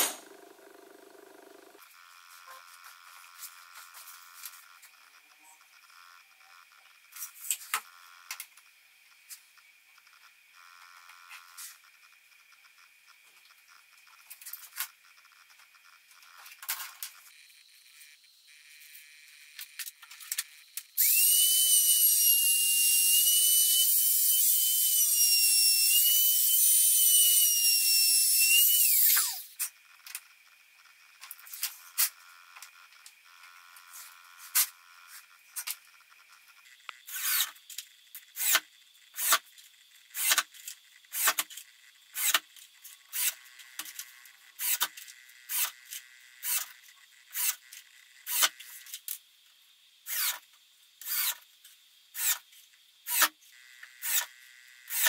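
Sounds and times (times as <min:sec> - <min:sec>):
power tool motor whine: 0:00.0 - 0:08.4, 0:17.0 - 0:37.6, 0:38.3 - 0:39.4, 0:43.0 - 0:48.8, 0:50.1 - 0:50.4, 0:51.0 - 0:51.4, 0:52.2 - 0:52.4, 0:53.1 - 0:55.0.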